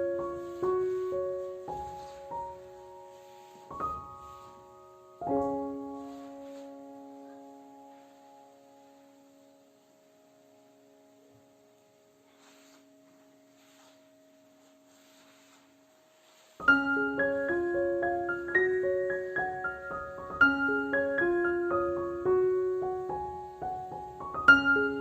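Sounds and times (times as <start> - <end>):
soft rustling: 0.0 - 9.0, 12.1 - 20.8
gentle piano melody: 0.0 - 25.0.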